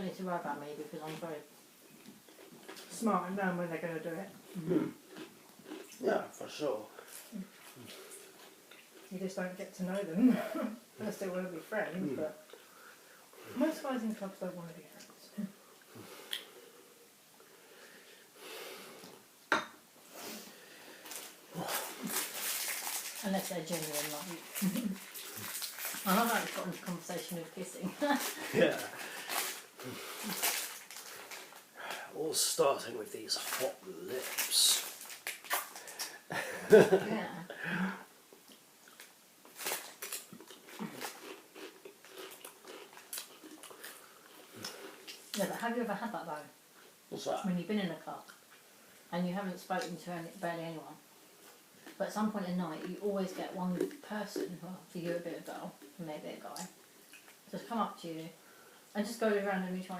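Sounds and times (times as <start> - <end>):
crackly rustling: 20.9 - 37.0, 38.4 - 45.8
crisps crunching: 21.0 - 31.7, 33.3 - 36.2, 38.8 - 45.5.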